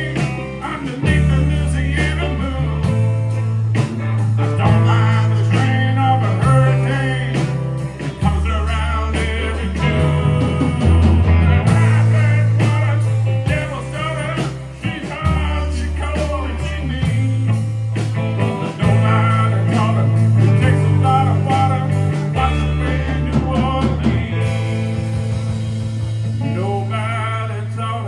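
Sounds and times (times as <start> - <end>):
bass guitar low notes: 0.0 - 28.0
steady drums: 0.0 - 28.0
wavering lead guitar line: 0.0 - 28.0.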